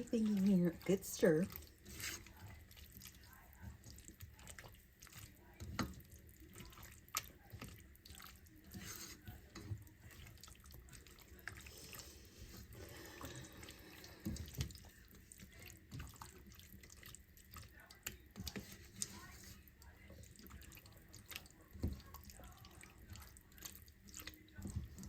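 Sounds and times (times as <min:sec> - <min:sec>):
spoon scraping a pot: 0:00.0 - 0:02.6, 0:08.7 - 0:10.4
wet sloshing of chili: 0:00.0 - 0:25.0.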